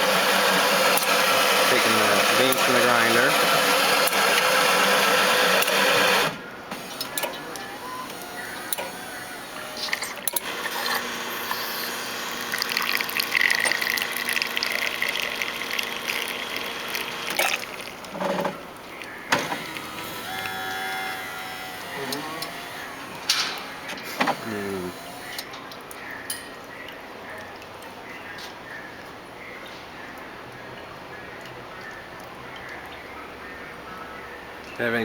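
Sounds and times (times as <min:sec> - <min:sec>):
coffee grinder grinding beans: 0:00.0 - 0:06.2, 0:07.0 - 0:18.4, 0:19.4 - 0:25.4
espresso pump humming: 0:00.0 - 0:25.4
liquid pouring: 0:10.4 - 0:20.2.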